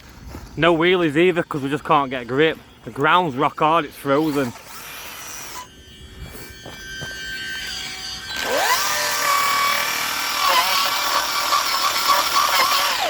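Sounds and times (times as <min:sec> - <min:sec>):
electric motor whining: 0:03.9 - 0:13.0.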